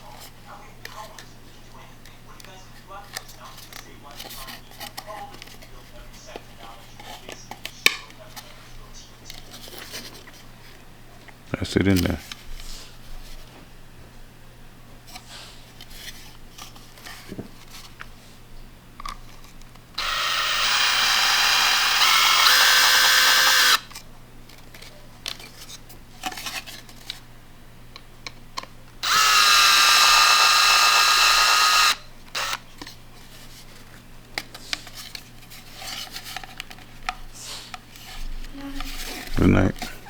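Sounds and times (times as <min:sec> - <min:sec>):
power drill motor whine: 0:20.0 - 0:23.9, 0:29.0 - 0:32.6.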